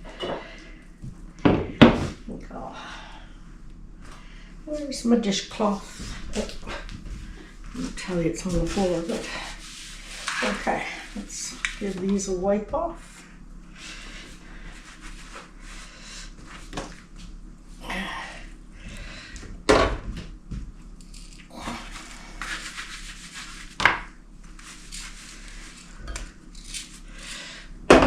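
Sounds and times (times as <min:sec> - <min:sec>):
dishcloth wiping shakers: 0:05.5 - 0:12.4, 0:21.8 - 0:23.8.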